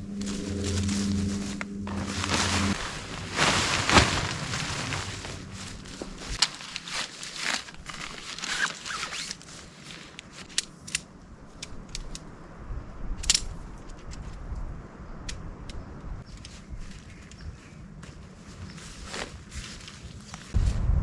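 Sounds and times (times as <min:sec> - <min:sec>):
tent fabric rustling: 0:00.0 - 0:10.7, 0:16.2 - 0:20.6.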